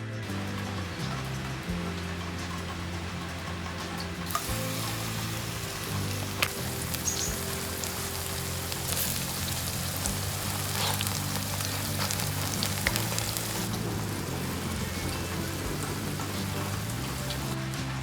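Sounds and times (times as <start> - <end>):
soft background music: 0.0 - 18.0
batter sizzling in hot oil: 0.2 - 18.0
oil spitting pops: 4.3 - 17.6.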